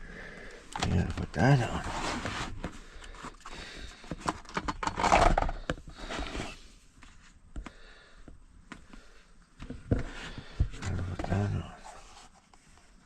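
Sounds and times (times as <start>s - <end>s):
rustling scrape: 1.6s - 2.8s, 6.0s - 7.4s
objects clicking and knocking: 4.1s - 5.8s.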